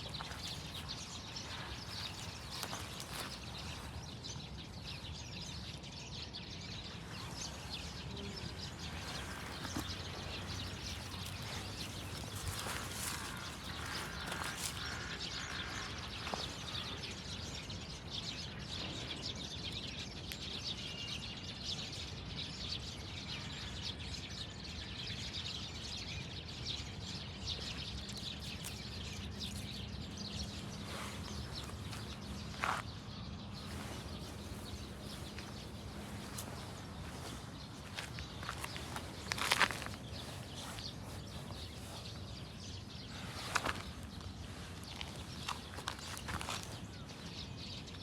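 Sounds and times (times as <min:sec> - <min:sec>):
bird chirps: 0:27.8 - 0:48.0.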